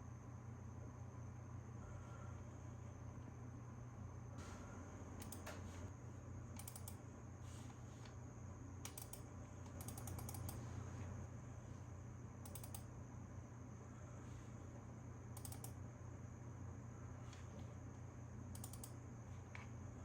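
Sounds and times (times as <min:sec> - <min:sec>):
faint low hum: 0:00.0 - 0:20.0
computer keyboard typing: 0:06.6 - 0:07.0, 0:08.9 - 0:10.6, 0:12.5 - 0:12.9, 0:15.4 - 0:15.8, 0:18.6 - 0:19.0.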